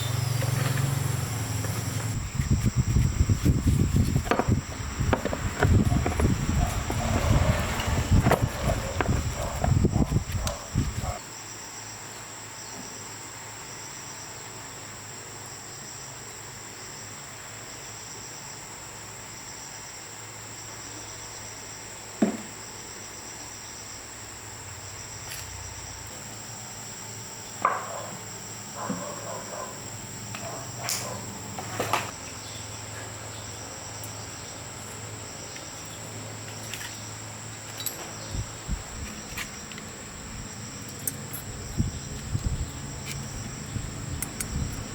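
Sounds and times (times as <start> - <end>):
insect chirring: 0.0 - 11.5, 32.1 - 44.9.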